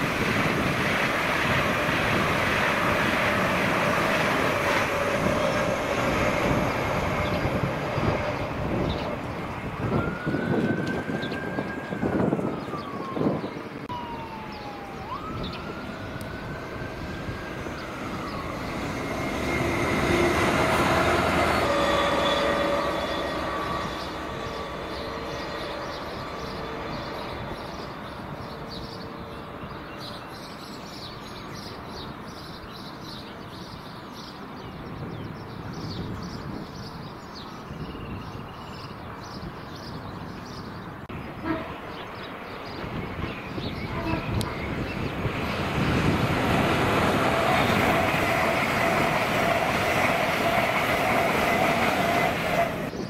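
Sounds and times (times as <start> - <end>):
train running noise: 0.0 - 14.4, 15.2 - 32.4, 39.9 - 53.0
diesel locomotive engine humming: 0.0 - 32.3, 40.9 - 53.0
passing train rush: 0.0 - 53.0
siren wailing: 7.5 - 28.3.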